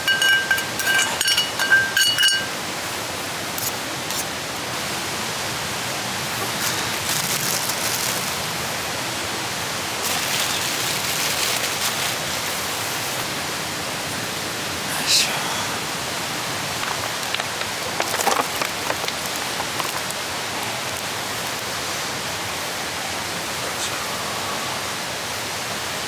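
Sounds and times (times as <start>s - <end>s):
metal clink: 0.0s - 2.6s.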